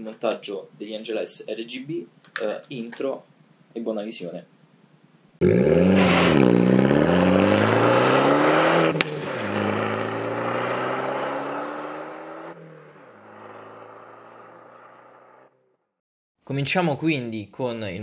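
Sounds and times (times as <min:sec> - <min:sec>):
exhaust crack at upshift: 0:05.4 - 0:15.4
car engine accelerating hard: 0:05.4 - 0:15.5.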